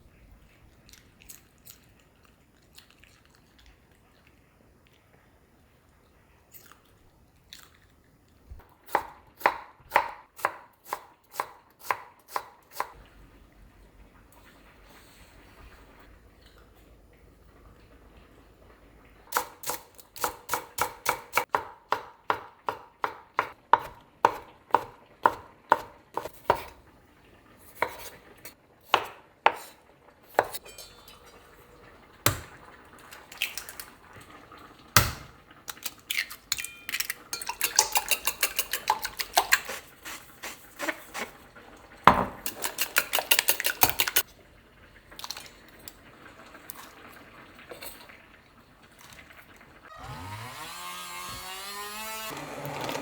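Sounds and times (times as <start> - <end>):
metal utensils clinking on dishes: 30.6 - 31.9, 35.8 - 39.8, 42.4 - 44.2
utensils rattling: 36.5 - 40.2, 42.4 - 44.2.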